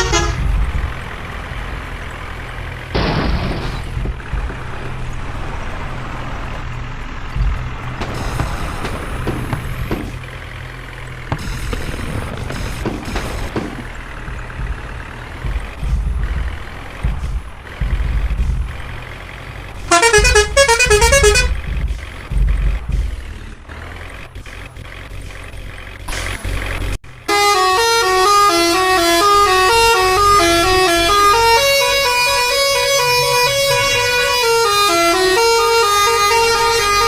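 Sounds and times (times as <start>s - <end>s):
melodic horn tune: 0.0s - 0.4s, 19.9s - 21.5s, 27.3s - 37.0s
tractor diesel engine rumbling: 0.0s - 37.0s
electronic melodic tune: 19.9s - 21.5s.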